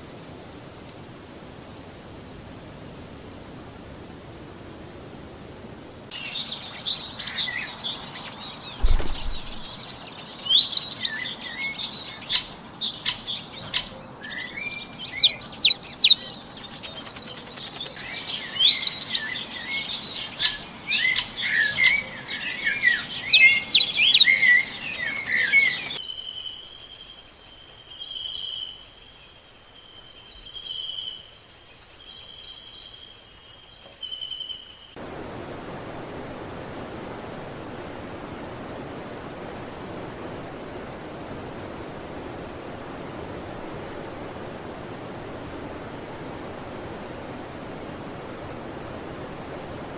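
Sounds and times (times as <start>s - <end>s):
soft background hiss: 0.0s - 49.9s
birds chirping: 6.1s - 26.4s.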